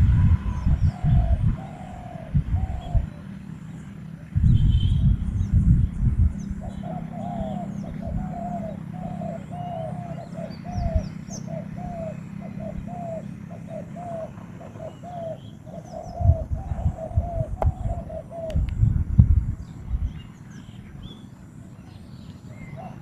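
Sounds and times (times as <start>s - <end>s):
low rustles and bumps: 4.3s - 6.6s, 18.6s - 20.2s
bird calling rising and falling: 6.5s - 18.7s.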